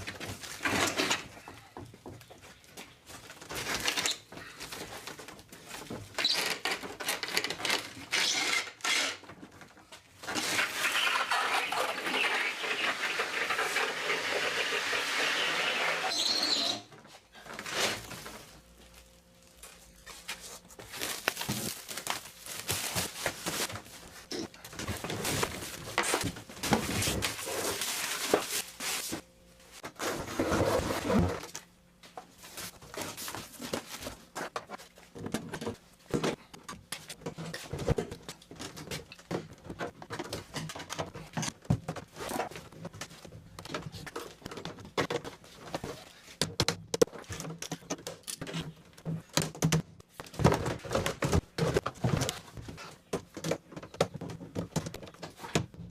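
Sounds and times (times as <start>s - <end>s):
packaging rustling: 17.9s - 29.2s.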